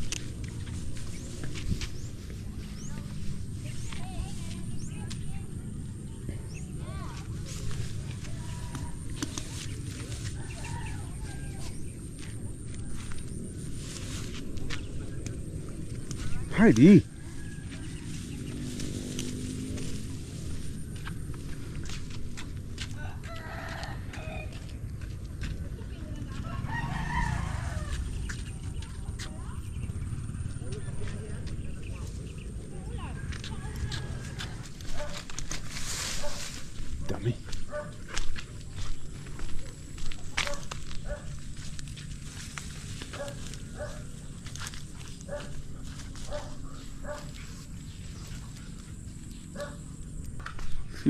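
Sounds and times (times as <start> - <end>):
rooster crowing: 23.0 - 24.7, 26.5 - 28.1
dog barking: 34.9 - 35.2, 36.2 - 36.4, 37.7 - 38.0, 40.4 - 41.4, 43.1 - 44.1, 45.3 - 45.6, 46.2 - 47.4, 49.5 - 49.9.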